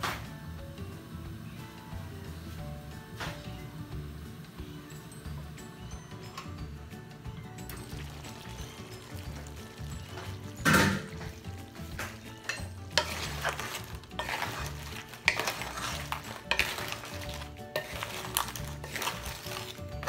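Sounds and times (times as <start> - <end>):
background music: 0.0 - 20.0
seafood sizzling in a pan: 6.6 - 20.0
utensil clinking and scraping pan: 7.6 - 20.0.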